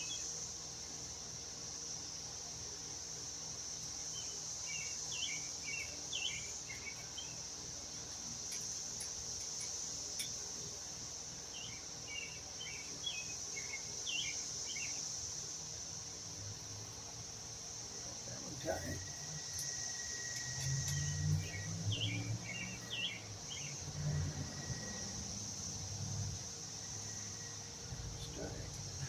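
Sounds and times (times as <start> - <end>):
bird chirping: 0.0 - 0.3, 4.1 - 7.4, 11.5 - 15.0, 18.8 - 23.9
crickets droning: 0.0 - 29.0.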